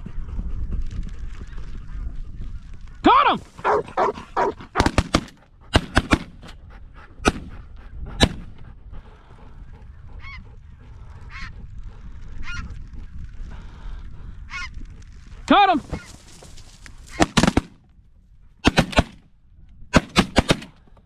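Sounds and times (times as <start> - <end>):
wind rumble: 0.0 - 21.0
shotgun shots: 3.6 - 6.6, 7.2 - 7.6, 8.2 - 8.5, 17.1 - 17.8, 18.6 - 19.2, 19.9 - 20.8.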